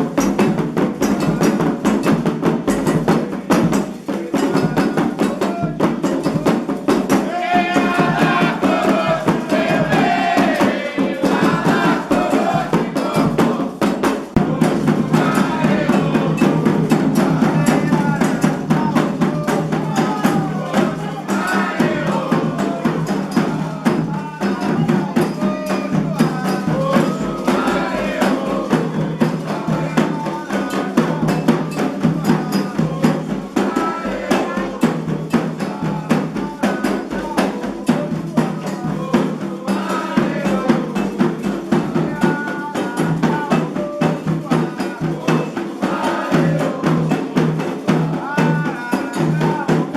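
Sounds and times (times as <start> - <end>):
ritual drumming: 0.0 - 49.9
voices singing a chant: 0.0 - 49.9
struck bell: 0.1 - 7.2, 13.1 - 33.6.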